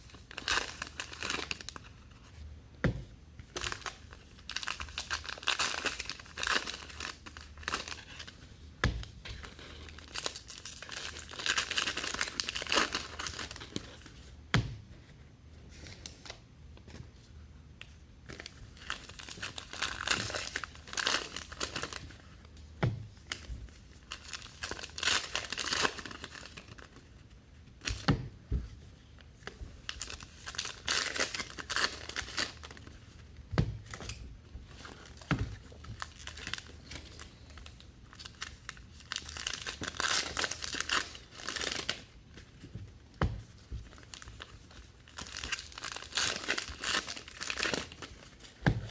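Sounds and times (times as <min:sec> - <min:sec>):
card pack wrappers tearing and crinkling: 0:00.0 - 0:01.9, 0:03.6 - 0:08.3, 0:09.4 - 0:14.1, 0:18.8 - 0:22.1, 0:24.1 - 0:27.0, 0:29.8 - 0:32.9, 0:34.8 - 0:42.2, 0:44.0 - 0:48.9.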